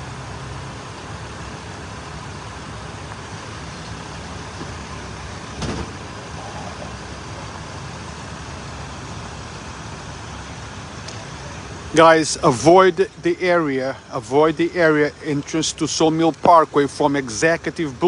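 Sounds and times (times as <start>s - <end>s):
roadside traffic noise: 0.0s - 18.0s
sharp thump: 5.6s - 6.0s.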